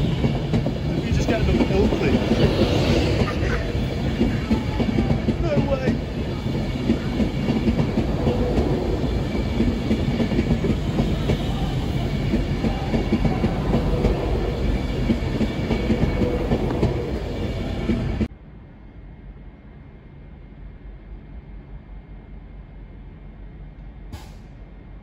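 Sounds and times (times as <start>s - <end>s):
train wheels rumbling on rails: 0.0s - 18.3s.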